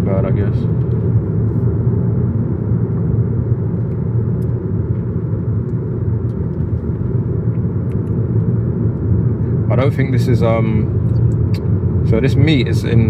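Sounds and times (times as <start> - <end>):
car engine hum: 0.0 - 13.0
road rumble: 0.0 - 13.0.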